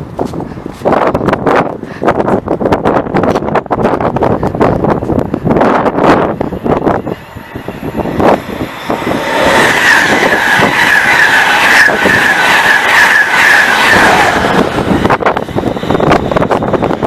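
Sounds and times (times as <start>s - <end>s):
train passing at speed: 0.0s - 17.0s
wind buffeting microphone: 0.0s - 17.0s
wheels clattering on rails: 3.1s - 17.0s.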